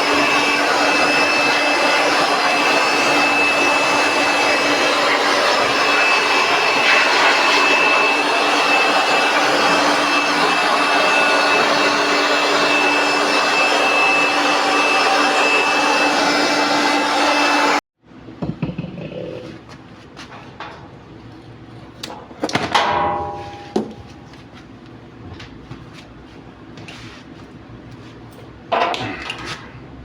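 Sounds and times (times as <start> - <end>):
power tool motor whining: 0.0 - 17.8.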